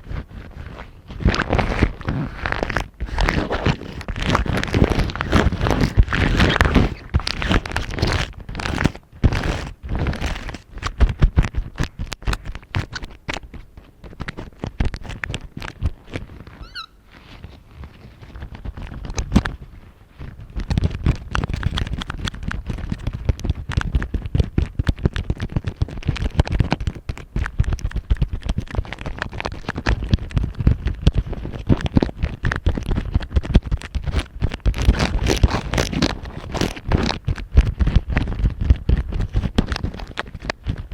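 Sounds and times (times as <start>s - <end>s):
brief squeak: 16.6s - 17.0s.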